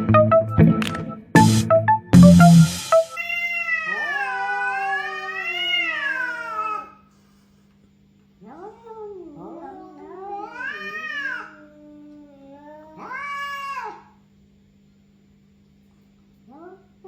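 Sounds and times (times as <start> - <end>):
cat meowing: 3.2 - 7.0, 8.4 - 14.2
cat yowling: 3.2 - 7.0, 8.4 - 14.2.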